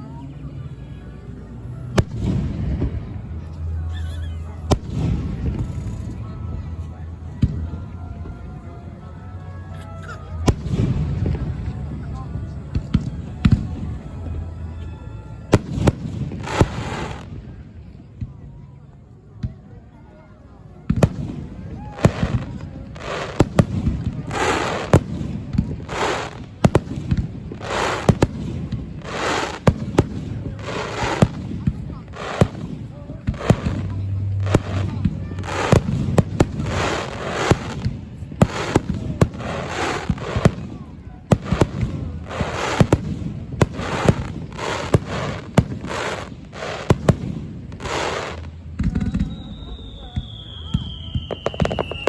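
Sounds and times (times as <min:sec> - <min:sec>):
crackling hiss of fireworks: 0:01.2 - 0:08.3, 0:09.8 - 0:19.8, 0:20.7 - 0:52.0
firework hissing rush: 0:25.9 - 0:40.7.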